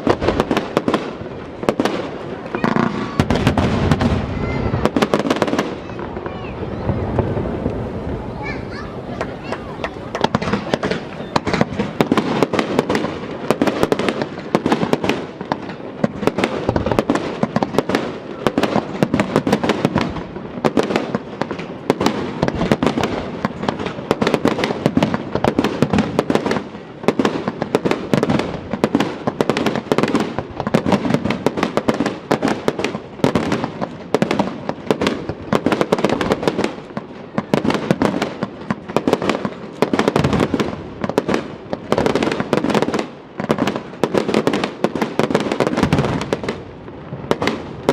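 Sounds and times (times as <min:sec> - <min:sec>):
fireworks bursts and crackling: 0:00.0 - 0:47.9.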